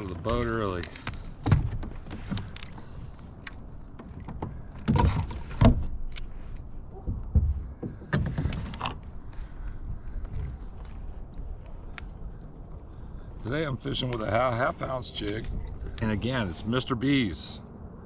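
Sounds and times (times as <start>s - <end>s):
knocks and clicks inside kayak: 1.0s - 2.9s, 3.9s - 6.2s, 6.9s - 9.0s.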